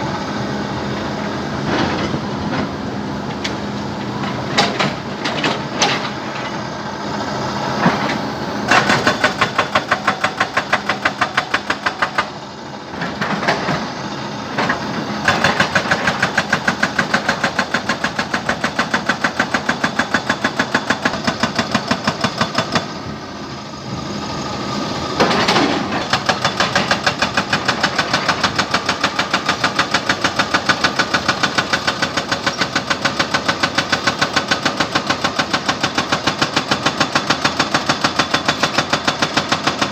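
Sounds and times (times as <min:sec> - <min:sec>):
jackhammer pounding rock: 0:08.7 - 0:12.4, 0:14.6 - 0:23.0, 0:25.2 - 0:39.9
engine hum: 0:21.4 - 0:28.8.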